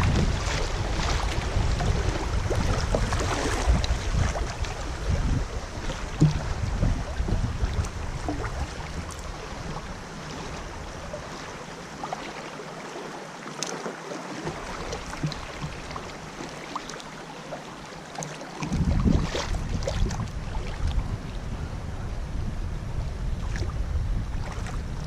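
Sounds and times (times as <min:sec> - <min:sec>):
wind buffeting microphone: 0:00.0 - 0:11.4, 0:18.6 - 0:25.0
river water splashing and trickling: 0:00.0 - 0:21.6, 0:23.4 - 0:25.0.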